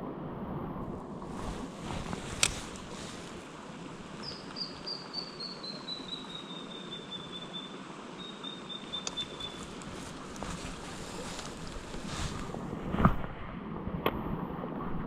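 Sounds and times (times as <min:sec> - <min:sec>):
bird trilling: 0:04.2 - 0:09.8.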